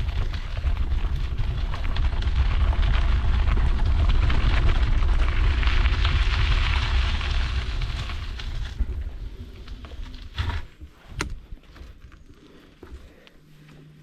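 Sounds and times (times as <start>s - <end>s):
bike tyres crunching on gravel: 0.0s - 11.8s.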